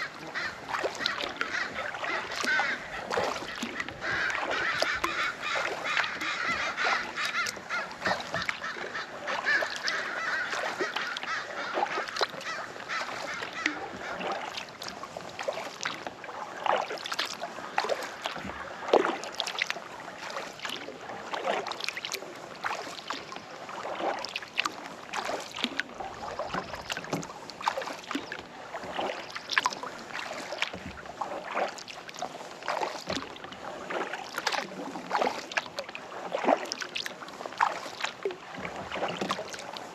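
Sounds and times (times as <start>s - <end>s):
waterfowl honking: 0.0s - 14.6s
kayak paddle splashing: 0.0s - 39.9s.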